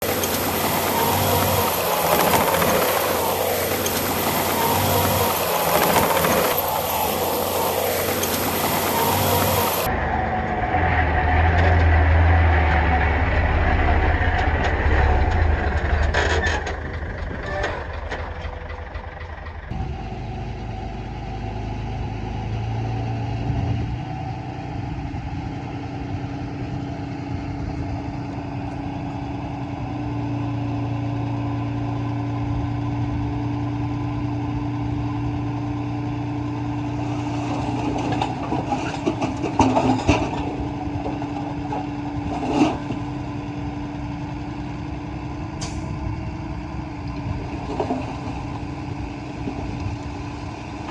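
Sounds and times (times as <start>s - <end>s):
diesel engines running: 0.0s - 50.9s.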